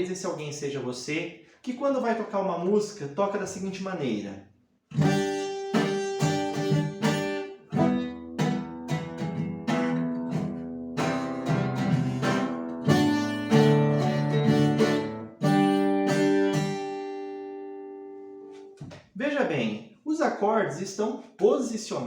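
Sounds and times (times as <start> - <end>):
acoustic guitar strumming chords: 5.0 - 18.7.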